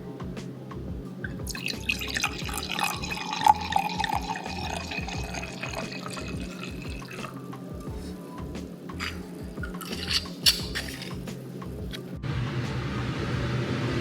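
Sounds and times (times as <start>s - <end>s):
liquid pouring into a glass: 1.4s - 7.4s.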